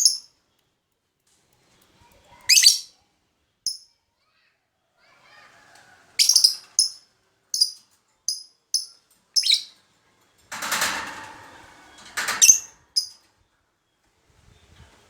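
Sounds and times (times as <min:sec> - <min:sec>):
lovebird chirping: 0:00.0 - 0:00.3, 0:02.5 - 0:02.9, 0:06.2 - 0:09.8, 0:12.4 - 0:13.2.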